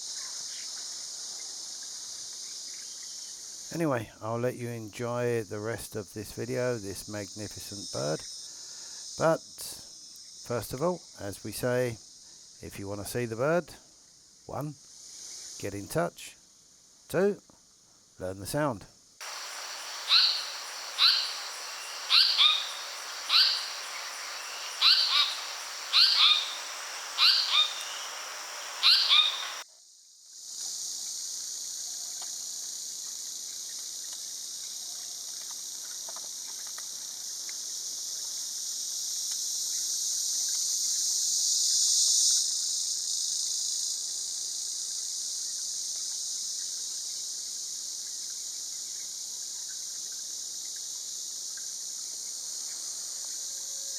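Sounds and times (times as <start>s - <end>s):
high insect drone: 0.0s - 17.1s, 19.2s - 53.9s
bird call notes: 19.2s - 29.6s.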